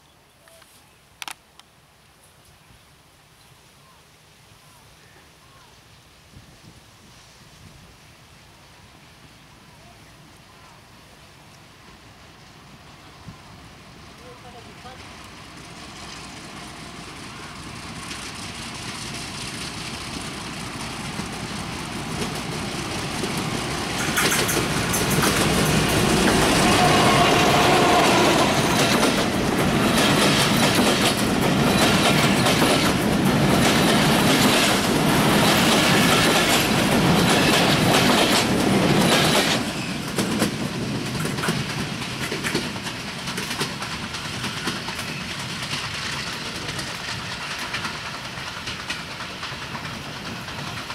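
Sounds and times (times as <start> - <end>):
diesel locomotive passing: 10.9 - 50.9
coach wheels clickety-clack: 12.5 - 50.9.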